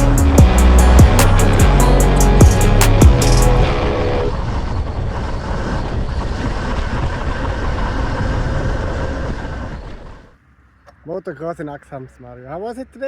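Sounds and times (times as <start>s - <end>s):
dirt bike engine: 0.0s - 10.4s
wind noise: 0.0s - 10.4s.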